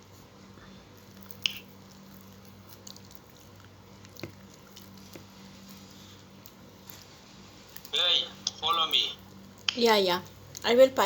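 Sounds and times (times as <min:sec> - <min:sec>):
low electrical hum: 0:00.0 - 0:11.0
chewing and mouth sounds: 0:00.9 - 0:07.1.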